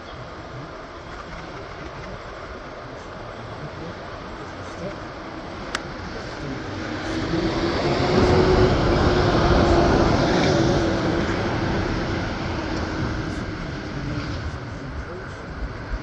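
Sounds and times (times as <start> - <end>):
vehicle passing by: 6.4 - 14.5.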